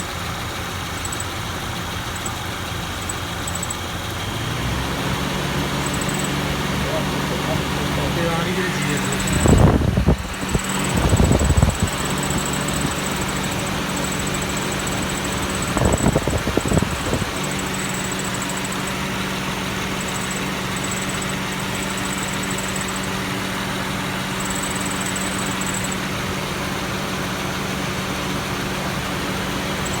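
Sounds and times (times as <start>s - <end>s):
car engine idling: 0.0s - 30.0s
thin high-pitched whine: 2.1s - 2.4s, 3.0s - 3.8s, 5.8s - 19.1s, 19.9s - 23.3s, 24.3s - 26.0s.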